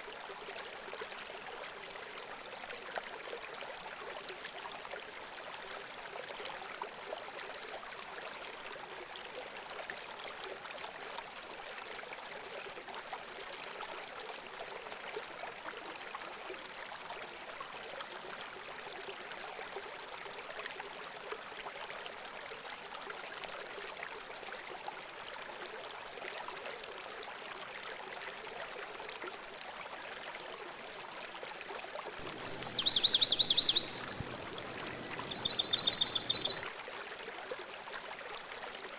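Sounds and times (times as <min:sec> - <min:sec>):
running water trickling: 0:31.9 - 0:37.5
high rapid bird trill: 0:32.2 - 0:36.7.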